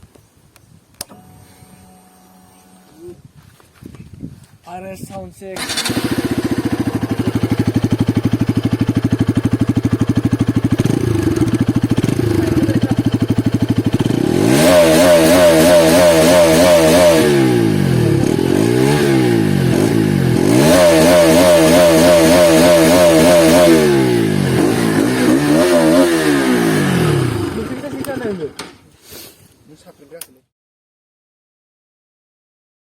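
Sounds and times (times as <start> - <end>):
motorcycle engine idling and revving: 5.5 - 28.8.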